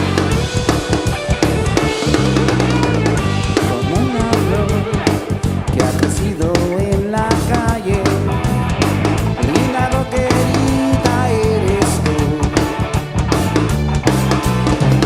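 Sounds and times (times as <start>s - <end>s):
drum kit: 0.0s - 15.0s
guitars: 0.0s - 15.0s
rock song: 0.0s - 15.0s
wavering melody line: 1.8s - 5.8s.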